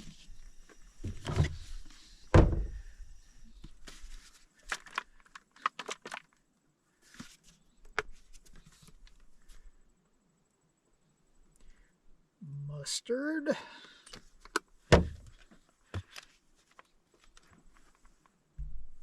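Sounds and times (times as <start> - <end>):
heavy thump: 2.3 - 2.8, 14.9 - 15.3.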